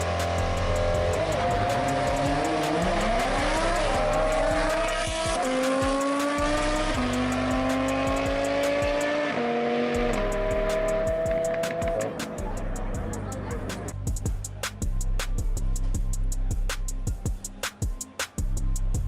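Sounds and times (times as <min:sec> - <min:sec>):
car engine accelerating through gears: 0:00.0 - 0:12.2.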